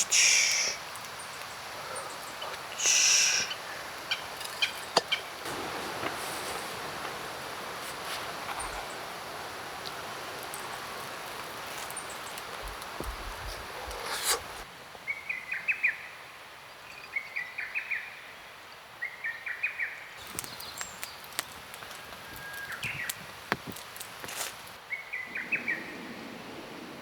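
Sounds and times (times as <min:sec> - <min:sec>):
steady hiss: 0:00.0 - 0:15.1
outdoor ambience: 0:00.0 - 0:19.2, 0:19.9 - 0:27.0
songbird chirping: 0:00.0 - 0:23.3, 0:24.3 - 0:27.0.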